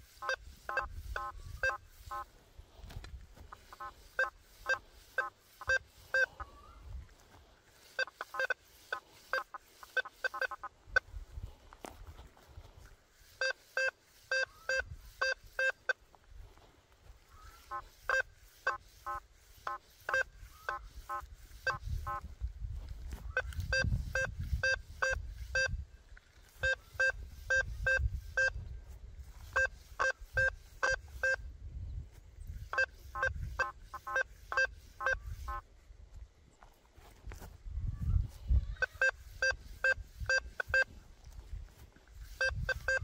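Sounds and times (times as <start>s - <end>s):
metal detector beeps: 0.0s - 2.3s, 3.6s - 6.8s, 7.8s - 11.1s, 13.3s - 16.0s, 17.7s - 22.2s, 23.3s - 25.8s, 26.5s - 28.7s, 29.4s - 31.5s, 32.6s - 35.6s, 38.8s - 41.0s, 42.2s - 43.0s.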